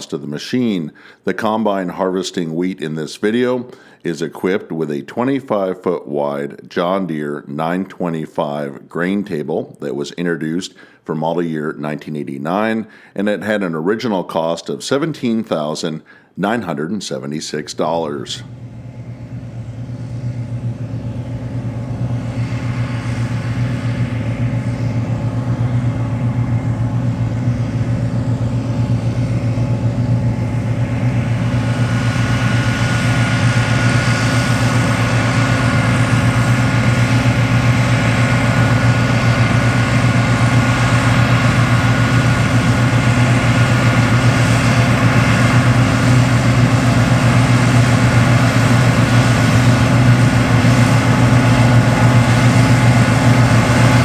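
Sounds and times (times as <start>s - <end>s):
combine diesel engine hum: 17.8s - 54.0s
steady machine whine: 17.8s - 54.0s
threshing machinery noise: 18.4s - 54.0s.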